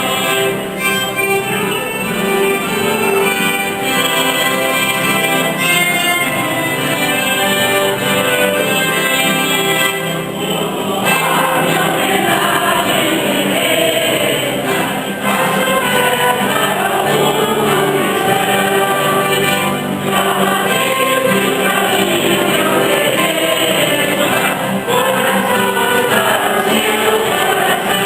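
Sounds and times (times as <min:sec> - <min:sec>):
church choir singing a hymn: 0:00.0 - 0:28.0.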